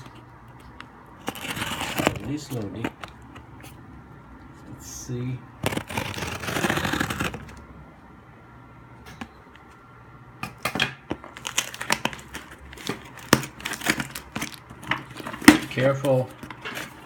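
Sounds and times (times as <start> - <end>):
scissors snipping packaging: 0.0 - 3.5, 5.6 - 7.6, 11.3 - 17.0
plastic crinkling: 0.0 - 4.8, 11.2 - 17.0.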